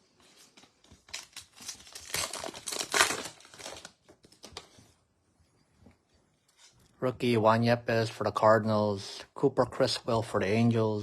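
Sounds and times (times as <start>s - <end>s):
wrapper crinkling as torn open: 0.8s - 4.8s.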